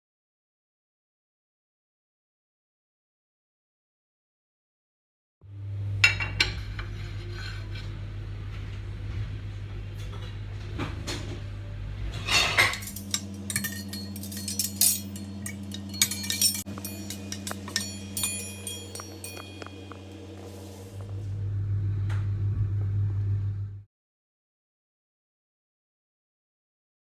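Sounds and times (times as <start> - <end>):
steady low hum: 11.6 - 23.8
dishes and cutlery clattering: 12.1 - 20.9.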